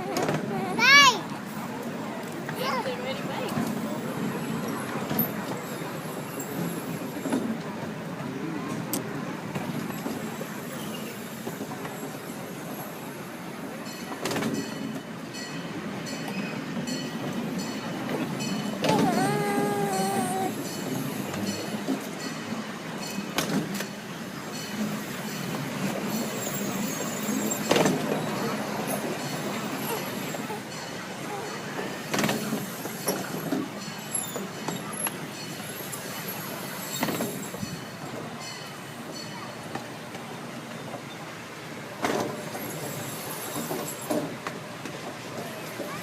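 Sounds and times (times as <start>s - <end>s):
ride train rumbling on track: 0.0s - 46.0s.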